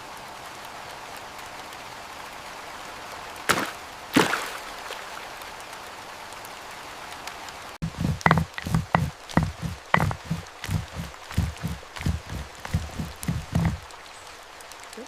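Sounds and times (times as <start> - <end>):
sharp knocks: 7.8 - 13.9
rain hissing: 7.8 - 15.0.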